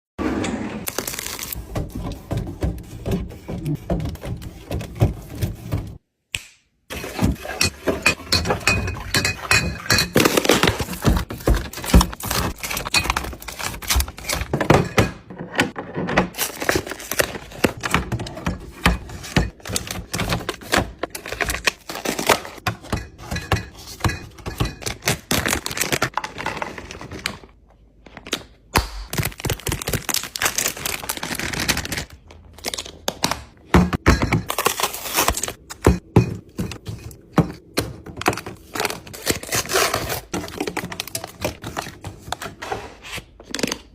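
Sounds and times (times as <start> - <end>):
jars and bottles knocking on shelves: 22.6 - 25.1, 33.6 - 34.5, 35.7 - 38.6.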